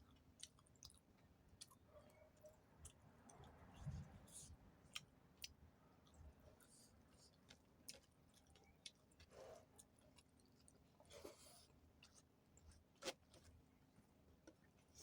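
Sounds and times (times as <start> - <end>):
person chewing: 0.1 - 1.8.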